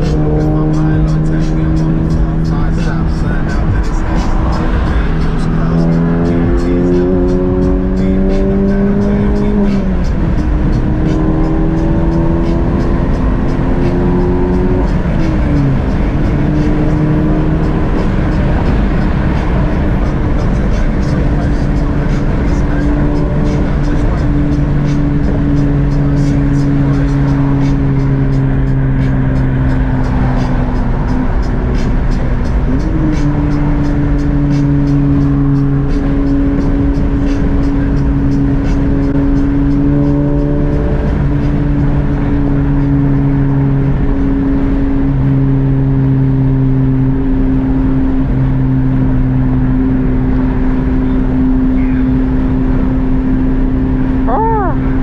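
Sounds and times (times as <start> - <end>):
music with beat and bass: 0.0 - 43.7
car road and engine rumble: 0.0 - 55.0.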